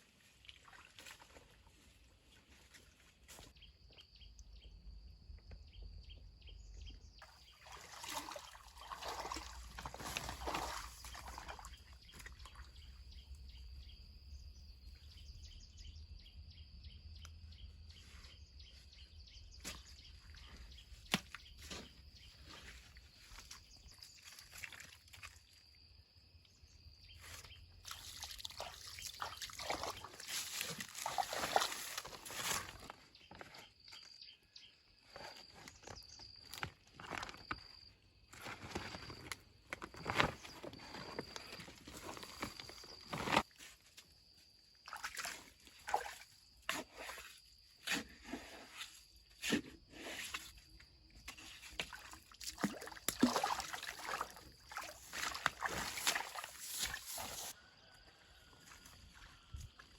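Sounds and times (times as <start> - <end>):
water sloshing and splashing: 0.0 - 3.0, 7.2 - 13.1, 19.7 - 25.7, 27.7 - 33.0, 44.7 - 49.4, 51.2 - 57.6.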